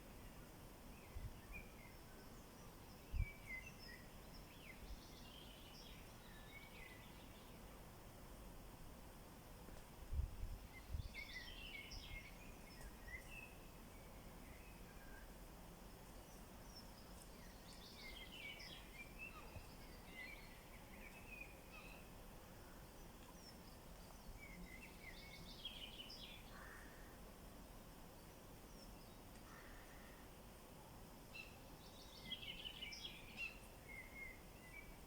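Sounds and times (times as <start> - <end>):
songbird singing: 0.0 - 7.9, 10.6 - 27.2, 28.0 - 30.4, 31.2 - 35.0
steady background hiss: 0.0 - 35.0.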